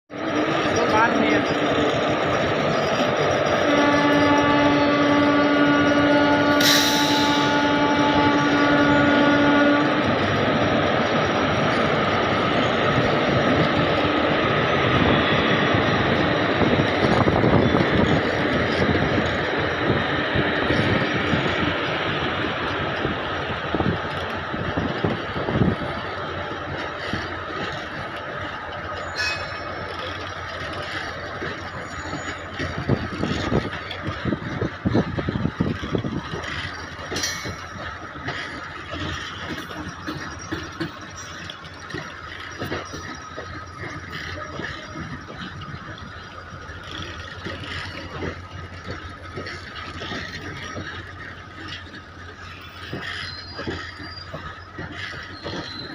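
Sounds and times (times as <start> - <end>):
train wheels rumbling on rails: 0.1 - 55.9.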